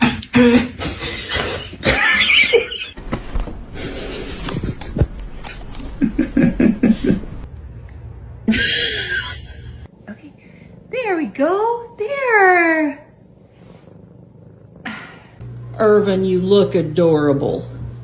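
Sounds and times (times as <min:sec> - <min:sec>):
person laughing: 0:00.0 - 0:03.0, 0:03.8 - 0:07.4, 0:08.5 - 0:09.9.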